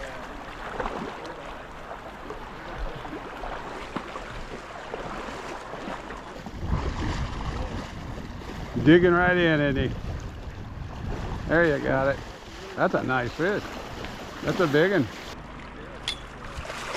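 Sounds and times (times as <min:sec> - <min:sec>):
flowing river water: 0:00.0 - 0:16.9
wind buffeting microphone: 0:05.8 - 0:14.4.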